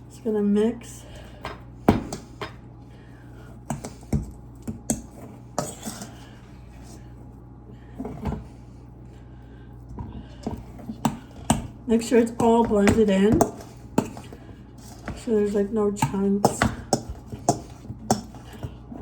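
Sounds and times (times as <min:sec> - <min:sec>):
fork scraping against a bowl: 0:05.6 - 0:06.3.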